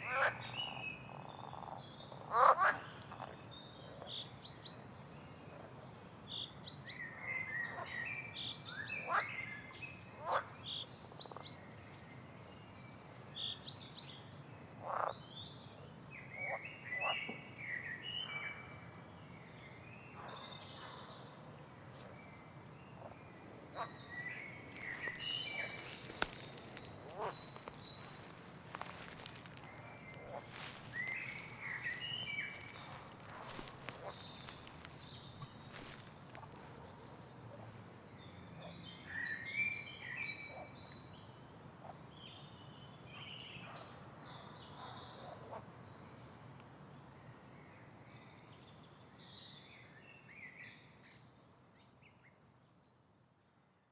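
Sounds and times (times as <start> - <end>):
birds chirping and twittering: 23.7 - 39.0
faint clicks: 24.7 - 36.7.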